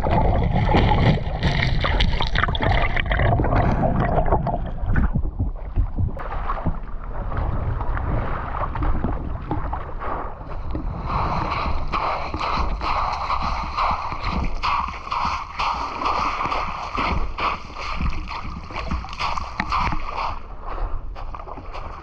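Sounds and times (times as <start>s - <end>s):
low rumble: 0.0s - 15.0s
water splashing and churning: 0.0s - 22.0s.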